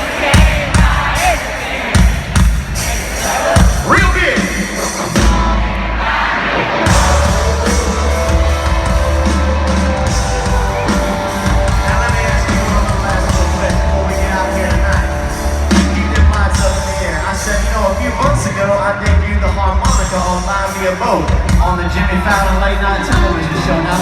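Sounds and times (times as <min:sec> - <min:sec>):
heavy bass: 0:00.0 - 0:24.0
live country rock band: 0:00.0 - 0:24.0
person singing: 0:06.8 - 0:24.0.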